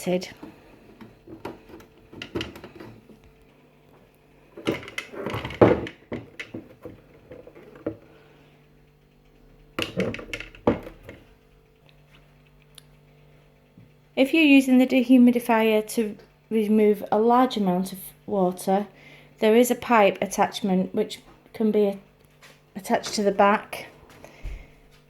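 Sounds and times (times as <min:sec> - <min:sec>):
faint steady hum: 0:00.0 - 0:25.0
plastic clicks and knocks: 0:00.3 - 0:03.2, 0:04.6 - 0:08.1, 0:09.8 - 0:11.3.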